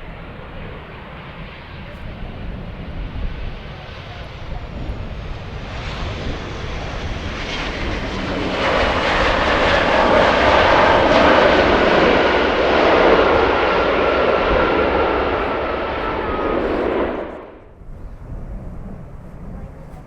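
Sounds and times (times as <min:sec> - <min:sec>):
jet engines passing: 0:00.0 - 0:20.0.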